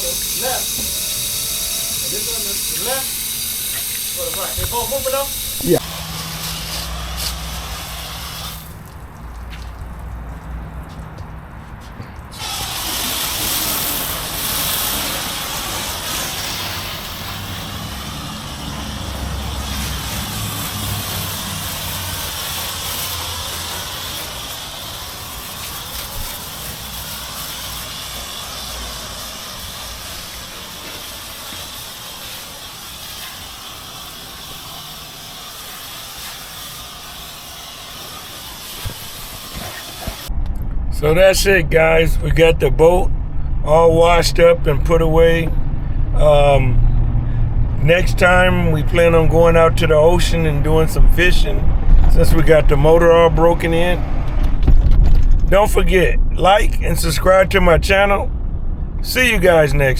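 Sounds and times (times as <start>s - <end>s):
hose water spraying: 0.0s - 40.3s.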